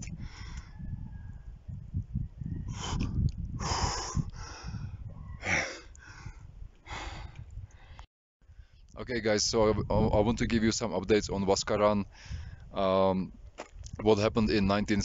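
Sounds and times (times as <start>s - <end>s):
man breathing hard and gasping: 2.7s - 8.0s, 12.1s - 12.6s.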